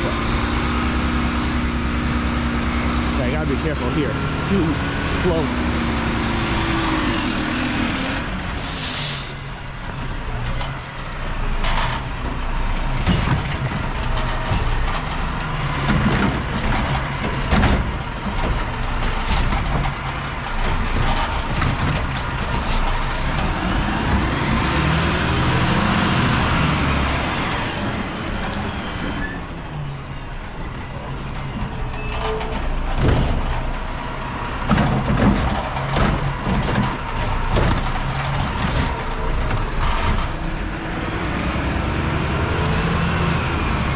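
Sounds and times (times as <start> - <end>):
truck engine rumbling: 0.0 - 43.9
high brake squeals: 8.2 - 12.5, 21.0 - 21.6, 28.9 - 32.7
air brake hisses: 8.3 - 10.2.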